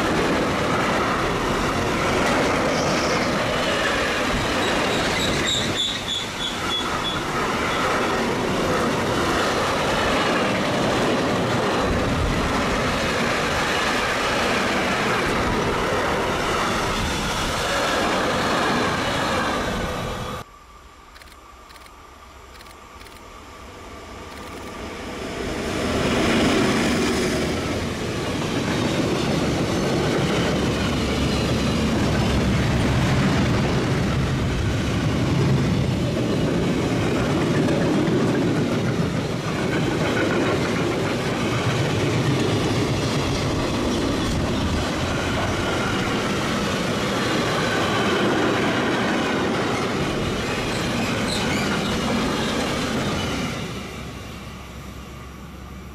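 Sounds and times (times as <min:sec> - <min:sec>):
electric locomotive passing: 0:00.0 - 0:55.9.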